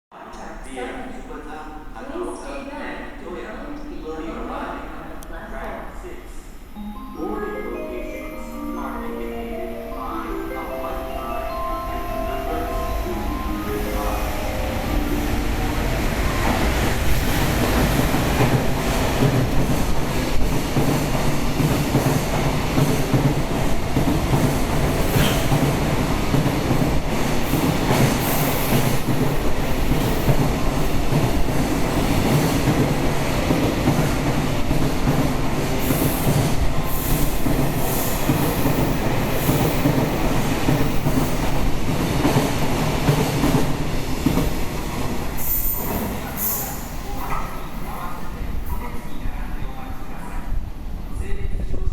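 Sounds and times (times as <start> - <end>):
train wheels rumbling on rail: 14.5 - 48.8.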